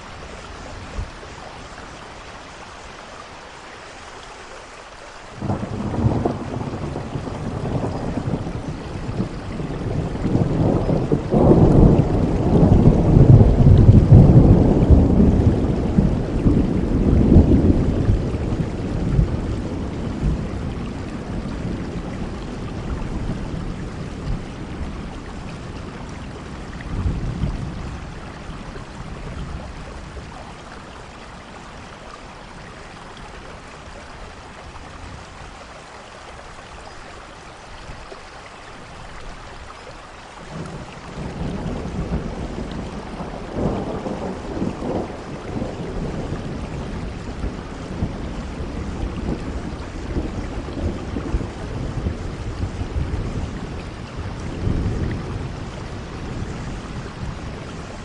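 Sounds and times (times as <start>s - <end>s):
steady rainfall: 0.0s - 58.0s
thunder rumbling: 5.4s - 31.7s, 40.4s - 58.0s.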